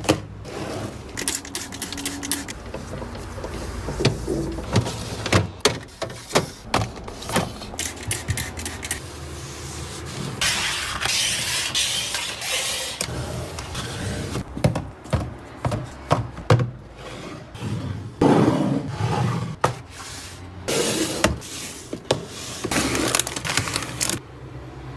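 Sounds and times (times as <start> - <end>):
packaging rustling and scraping: 21.0 - 24.2.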